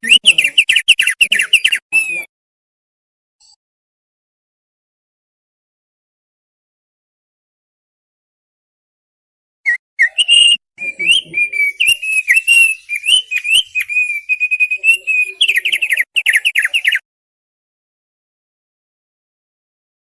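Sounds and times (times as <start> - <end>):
bird singing whistled chirps: 0.0 - 2.3, 9.7 - 17.0.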